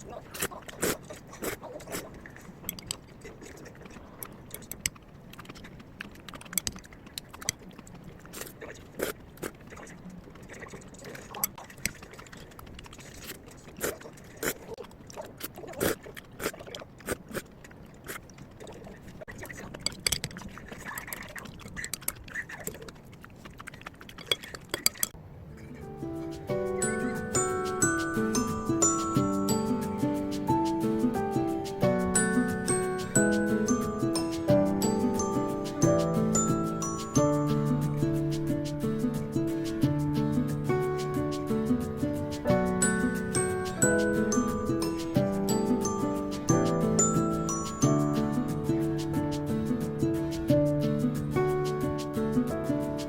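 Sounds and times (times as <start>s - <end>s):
mallet percussion music: 25.8s - 51.8s.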